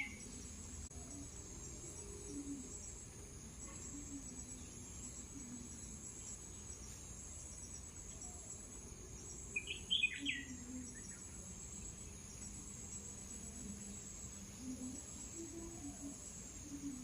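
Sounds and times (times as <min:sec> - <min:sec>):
bird chirps: 0:00.0 - 0:01.3, 0:07.5 - 0:12.5
high-pitched insect chorus: 0:00.0 - 0:17.0.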